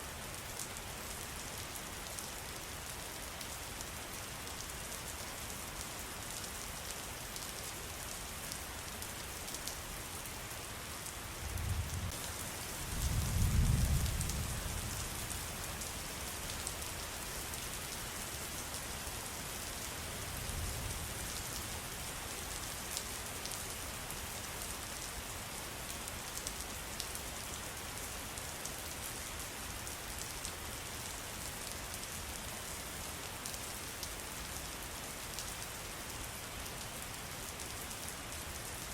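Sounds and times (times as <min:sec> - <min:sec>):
rain patter: 0:00.0 - 0:38.9.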